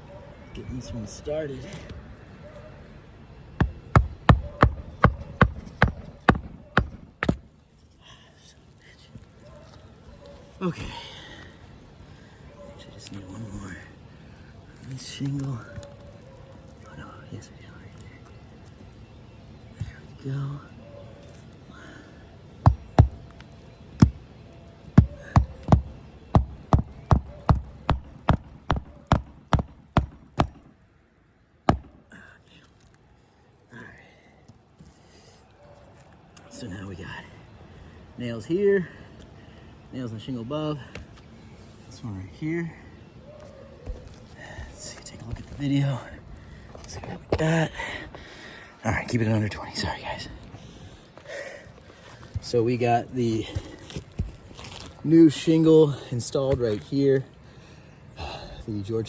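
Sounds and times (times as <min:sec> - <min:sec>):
hammer striking nail: 0:03.6 - 0:07.5, 0:22.7 - 0:23.3, 0:24.0 - 0:24.2, 0:25.0 - 0:30.7, 0:31.7 - 0:32.0.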